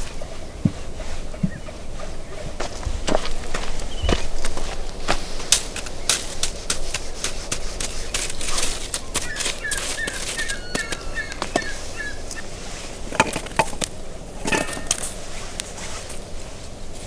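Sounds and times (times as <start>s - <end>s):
small bird chirping: 3.3s - 5.1s, 5.7s - 13.1s
utensils knocking and clicking: 13.1s - 15.2s.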